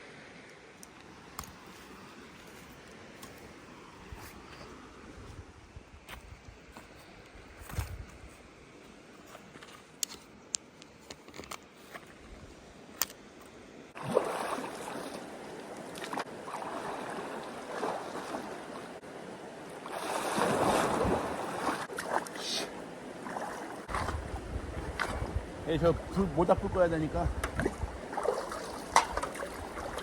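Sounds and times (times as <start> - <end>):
water splashing: 14.0 - 26.2, 27.4 - 30.0.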